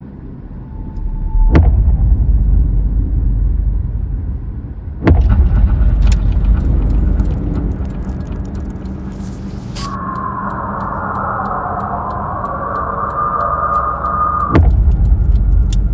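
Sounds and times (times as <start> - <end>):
deep steady rumble: 0.0 - 15.9
sudden booming hits: 1.2 - 9.8, 14.6 - 15.9.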